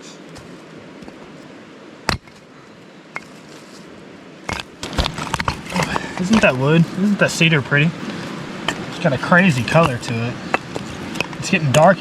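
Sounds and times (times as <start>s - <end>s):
steady background hiss: 0.0s - 12.0s
firewood pieces knocking together: 4.5s - 6.6s.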